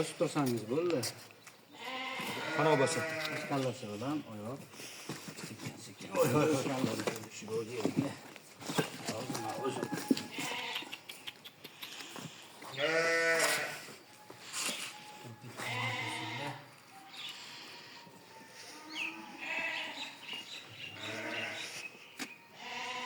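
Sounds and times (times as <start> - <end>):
sheep bleating: 1.7 - 3.6, 9.4 - 11.0, 12.7 - 13.9, 15.4 - 16.7, 17.4 - 20.2, 20.9 - 21.8, 22.5 - 23.0.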